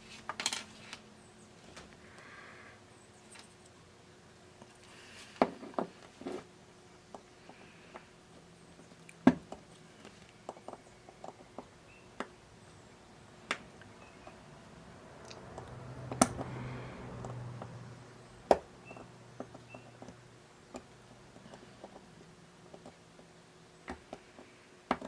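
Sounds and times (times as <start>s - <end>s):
tools clicking and tapping: 15.3s - 17.8s.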